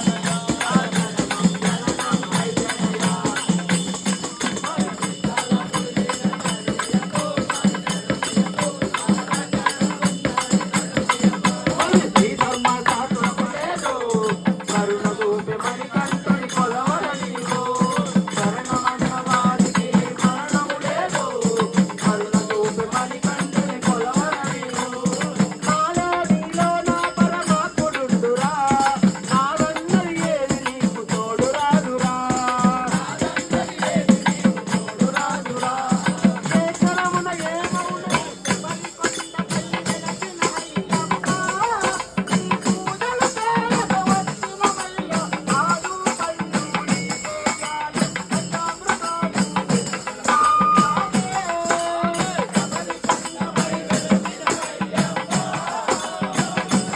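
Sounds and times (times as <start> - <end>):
devotional singing: 0.0 - 56.9
tambourine jingling rhythm: 0.0 - 56.9.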